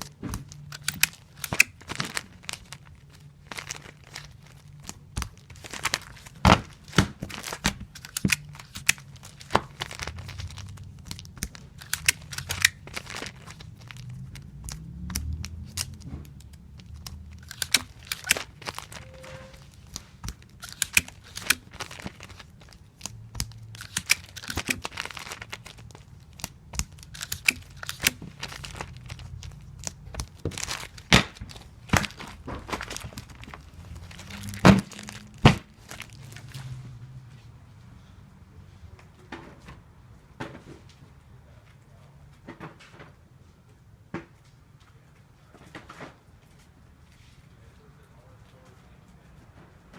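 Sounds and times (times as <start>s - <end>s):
tape ripping from dispenser: 0.0s - 36.8s.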